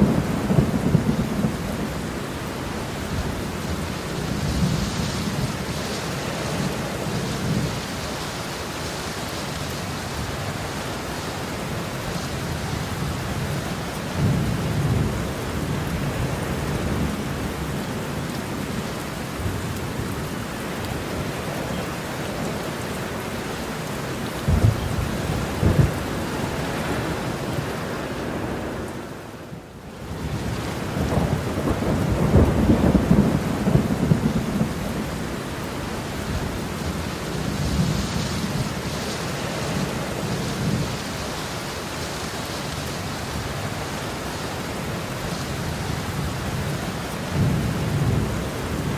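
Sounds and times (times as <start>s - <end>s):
low rolling thunder: 0.0s - 5.8s, 12.4s - 17.9s, 24.4s - 41.1s, 45.6s - 48.9s
heavy rain falling: 0.0s - 48.9s.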